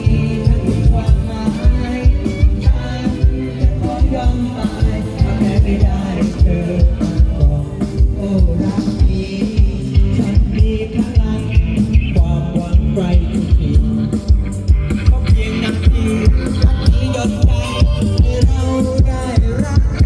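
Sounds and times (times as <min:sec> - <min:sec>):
band music with drum beat: 0:00.0 - 0:20.0.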